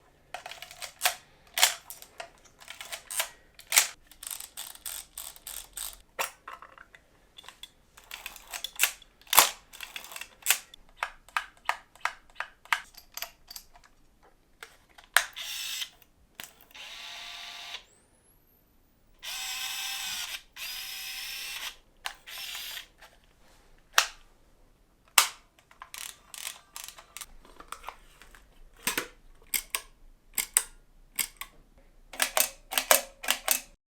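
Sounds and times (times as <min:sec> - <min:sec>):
film advance ratcheting: 0:00.4 - 0:06.0, 0:07.6 - 0:13.0, 0:25.9 - 0:27.3.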